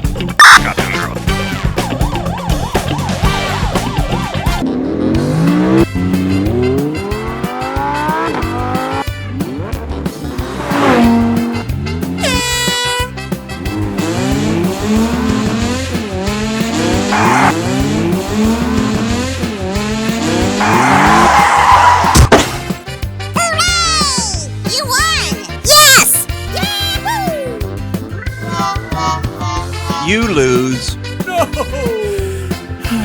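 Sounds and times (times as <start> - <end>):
background music: 0.0 - 33.0
horn blast: 0.4 - 4.6, 10.7 - 14.7, 28.5 - 31.2
race car engines revving: 0.4 - 22.7.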